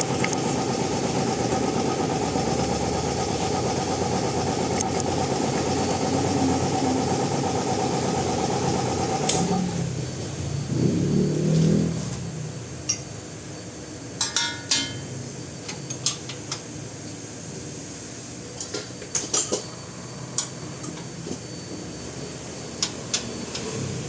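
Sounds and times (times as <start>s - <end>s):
steady background hum: 12.0s - 24.0s
tools clinking against metal: 14.2s - 16.6s, 18.6s - 19.7s.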